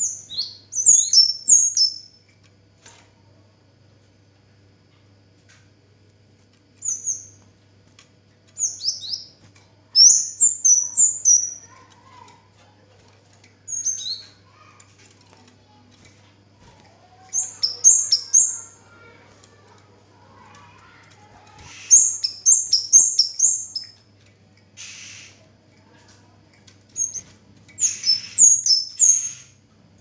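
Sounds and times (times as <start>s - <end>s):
songbird chirping: 0.0s - 2.2s, 8.5s - 12.4s, 16.8s - 24.1s, 24.8s - 29.6s.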